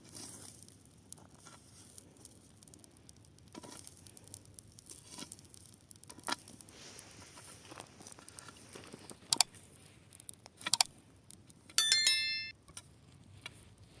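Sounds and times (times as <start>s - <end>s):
burning grass crackling: 0.0s - 11.7s
metallic ring: 11.8s - 12.5s.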